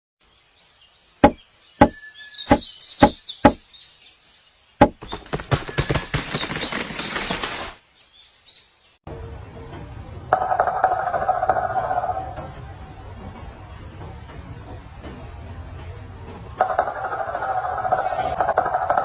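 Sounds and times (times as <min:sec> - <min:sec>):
woodpecker knocking on wood: 0:01.2 - 0:03.6, 0:04.8 - 0:06.8
rapid woodpecker hammering: 0:01.2 - 0:03.7, 0:04.8 - 0:07.2.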